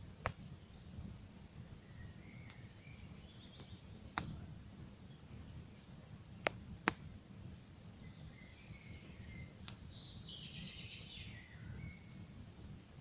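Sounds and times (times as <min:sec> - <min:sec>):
campfire crackling: 0:00.0 - 0:01.6, 0:03.4 - 0:07.8
small birds chirping: 0:00.0 - 0:13.0
campfire sharp pops: 0:00.2 - 0:00.5, 0:03.6 - 0:04.5, 0:06.4 - 0:07.2, 0:09.6 - 0:09.9.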